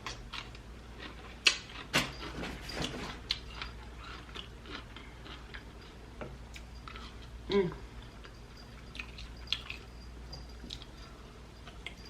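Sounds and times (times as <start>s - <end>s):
biting and chewing food: 0.0s - 7.4s.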